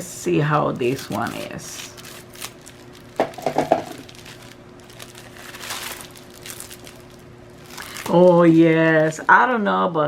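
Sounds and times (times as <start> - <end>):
plastic packaging crinkling: 0.6 - 10.0
sharp handling knocks: 3.2 - 4.0.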